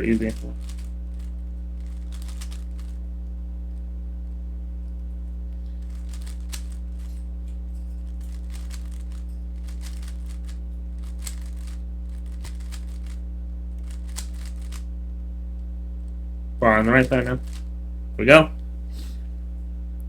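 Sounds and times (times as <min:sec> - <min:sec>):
puzzle cube clicking turns: 0:00.0 - 0:03.0, 0:05.8 - 0:07.1, 0:08.2 - 0:13.2, 0:13.8 - 0:14.8, 0:17.4 - 0:17.6
low electrical hum: 0:00.0 - 0:20.0.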